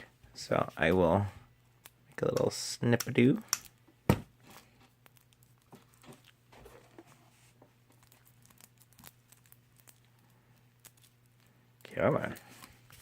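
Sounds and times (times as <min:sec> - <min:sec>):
plastic wrap crinkling: 0:04.4 - 0:13.0
small clicks of plastic wrap: 0:07.9 - 0:13.0.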